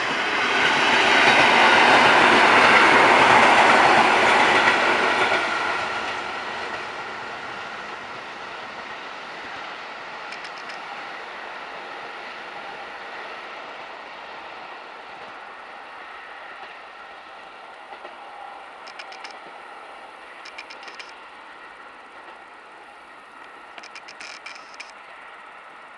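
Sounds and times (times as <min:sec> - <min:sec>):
train rumble and hiss: 0:00.0 - 0:25.9
wheel clicks over rail joints: 0:10.3 - 0:10.9, 0:18.8 - 0:19.5, 0:20.4 - 0:21.2, 0:23.4 - 0:25.0.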